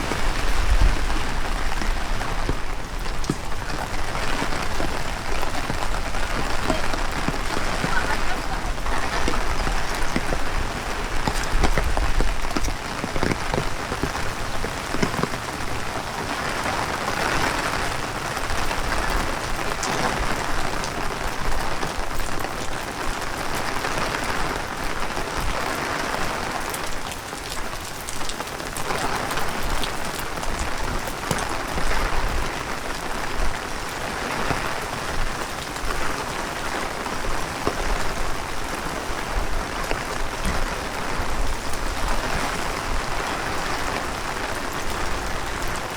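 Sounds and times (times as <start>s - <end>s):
wind buffeting microphone: 0.0s - 25.6s
heavy rain on pavement: 0.0s - 45.9s.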